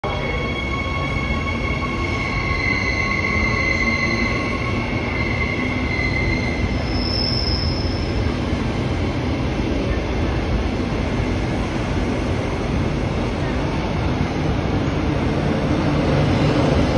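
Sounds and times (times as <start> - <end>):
short high squeal: 2.0 - 8.2.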